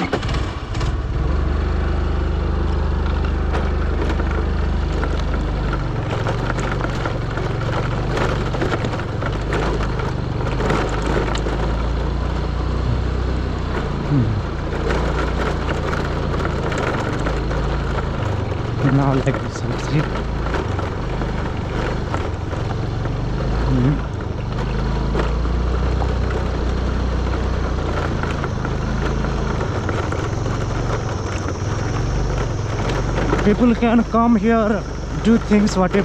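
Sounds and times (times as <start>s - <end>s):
motorcycle engine running: 0.0s - 36.0s
loose clatter: 3.0s - 13.0s.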